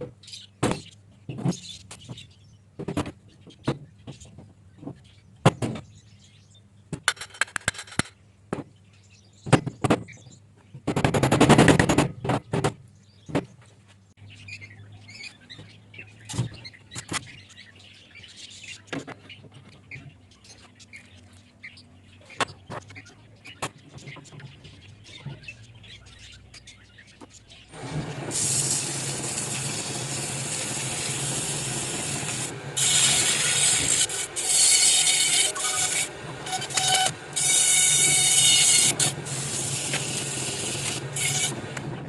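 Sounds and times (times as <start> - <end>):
birds chirping: 0.0 - 27.8
tools knocking and clicking: 7.0 - 8.2.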